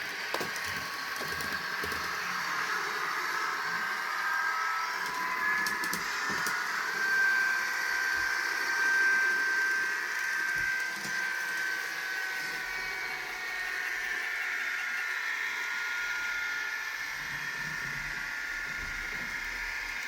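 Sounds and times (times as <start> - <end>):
model train mechanical whine: 0.0 - 20.0.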